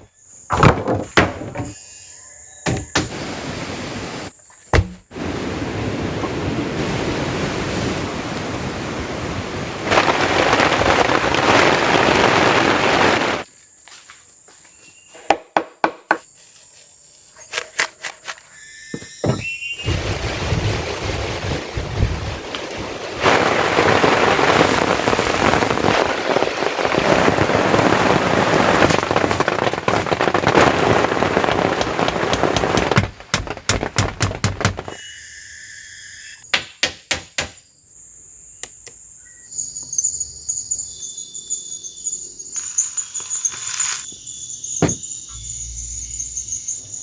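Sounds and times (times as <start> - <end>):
insects droning: 0.0 - 33.0, 34.8 - 47.0
forest ambience: 0.0 - 47.0
heavy rain pouring: 5.2 - 13.4, 19.8 - 33.3.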